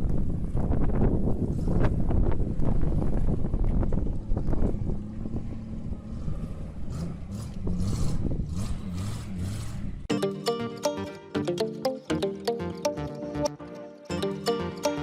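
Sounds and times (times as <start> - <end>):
music: 10.1 - 15.0.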